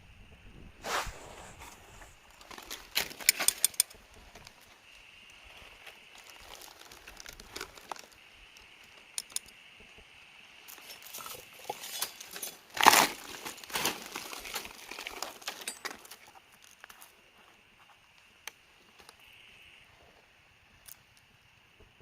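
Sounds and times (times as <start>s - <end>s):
rustling and crinkling handling: 0.8s - 8.2s, 10.7s - 18.0s.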